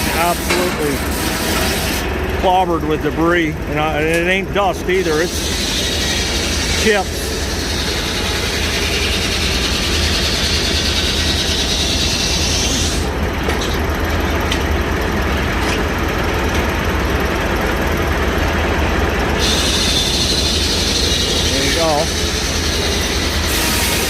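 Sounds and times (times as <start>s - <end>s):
low machine drone: 0.0s - 24.0s
saw blade cutting log: 4.9s - 13.1s, 19.4s - 24.0s.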